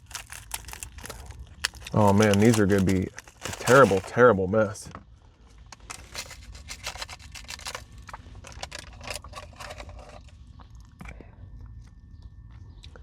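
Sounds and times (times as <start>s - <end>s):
snack wrapper crinkling: 0.0s - 4.2s, 5.8s - 10.2s.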